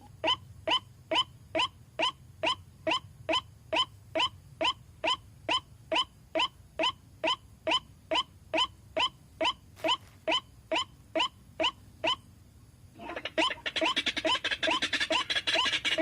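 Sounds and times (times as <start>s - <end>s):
waterhen calling: 13.0s - 16.0s.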